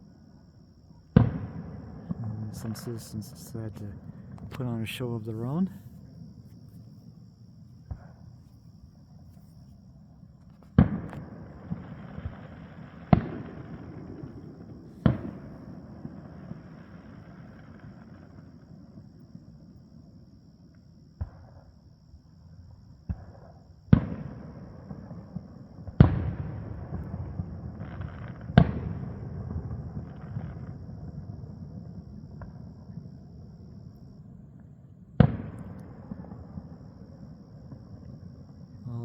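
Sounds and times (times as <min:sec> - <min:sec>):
firework booms with rolling echo: 0:00.0 - 0:09.2, 0:09.8 - 0:20.2, 0:21.2 - 0:21.8, 0:22.5 - 0:38.8
small firework pops: 0:01.1 - 0:02.2, 0:07.8 - 0:09.8, 0:10.4 - 0:15.5, 0:20.7 - 0:21.8, 0:23.0 - 0:30.8, 0:32.3 - 0:33.0, 0:34.6 - 0:36.6.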